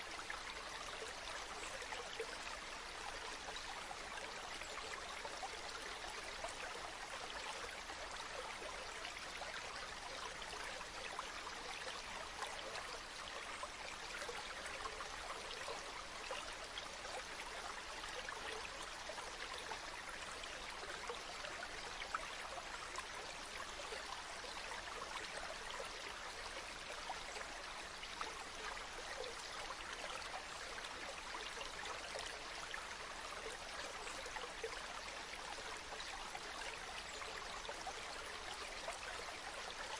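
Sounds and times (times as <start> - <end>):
small stream trickling: 0.0 - 39.9.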